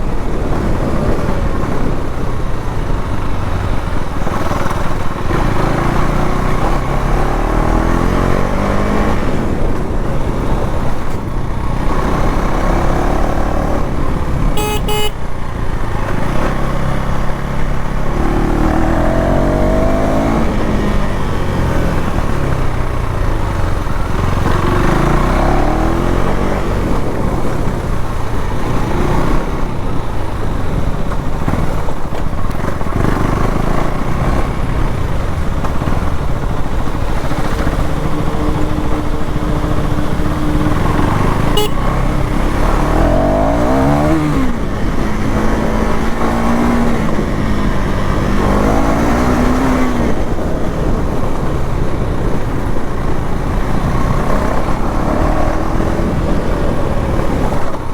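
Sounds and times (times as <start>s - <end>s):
motorcycle engine accelerating: 0.0s - 57.9s
vehicle horn double beep: 14.4s - 15.3s, 40.9s - 42.4s.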